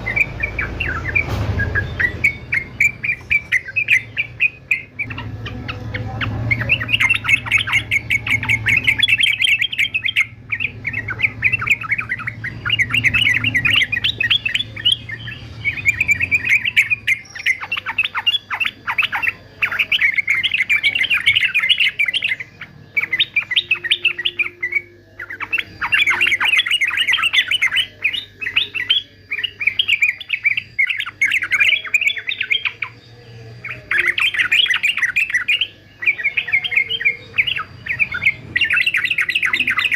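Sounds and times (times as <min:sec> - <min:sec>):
bulbul bubbling chattering song: 0:00.0 - 0:39.9.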